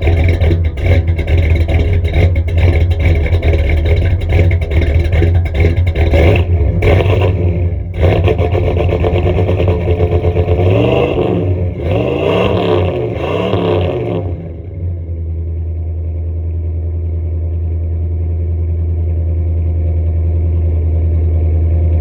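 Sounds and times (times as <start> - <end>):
engine revving: 0.0 - 15.1
car engine rumbling: 0.0 - 22.0.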